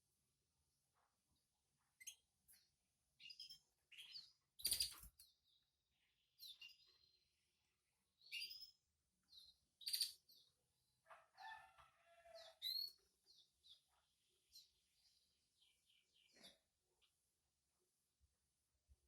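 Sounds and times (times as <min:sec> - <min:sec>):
canaries chirping: 0:03.3 - 0:05.2, 0:06.4 - 0:07.1, 0:08.2 - 0:10.5, 0:11.1 - 0:14.7.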